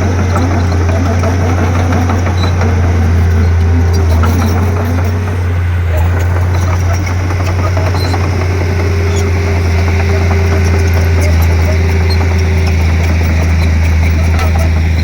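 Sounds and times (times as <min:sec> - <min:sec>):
bulldozer diesel engine droning: 0:00.0 - 0:15.0.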